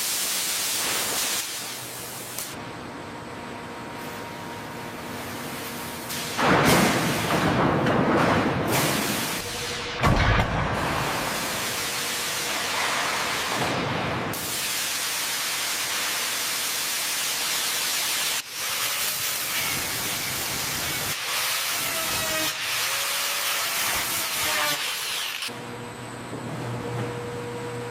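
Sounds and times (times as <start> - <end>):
steady hiss: 0.0 - 2.6, 14.4 - 24.0.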